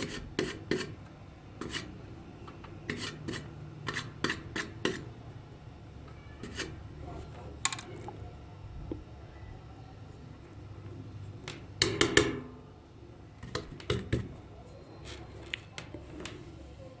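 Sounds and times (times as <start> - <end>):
scraping strokes: 1.6 - 1.9, 2.9 - 5.0.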